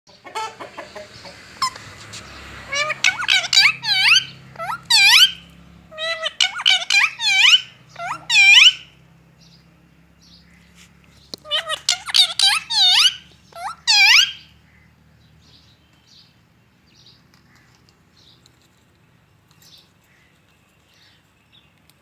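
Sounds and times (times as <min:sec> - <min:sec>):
parrot calling: 0:01.3 - 0:02.0, 0:02.6 - 0:09.0, 0:11.4 - 0:14.9.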